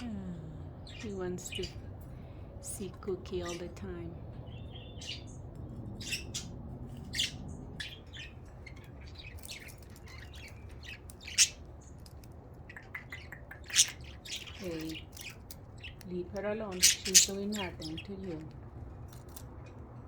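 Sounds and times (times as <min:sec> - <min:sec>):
budgerigars chirping and squawking: 0:00.8 - 0:02.3, 0:03.1 - 0:18.5.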